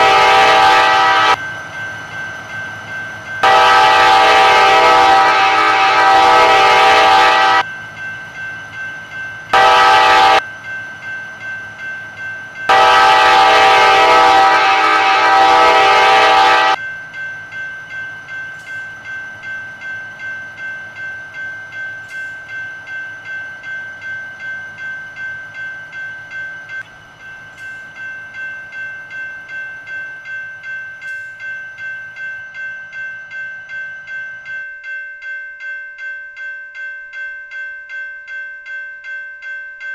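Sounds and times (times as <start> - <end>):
locomotive air horn blasts: 0.0 - 1.4, 3.4 - 7.6, 9.6 - 10.4, 12.7 - 16.8
crossing bell dinging: 0.0 - 39.9.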